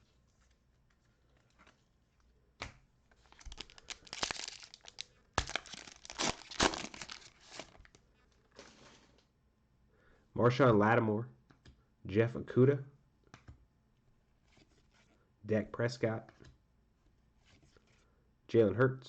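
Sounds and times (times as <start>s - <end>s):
plastic wrapper crinkling: 3.1s - 8.7s
wrapper tearing: 3.2s - 8.0s.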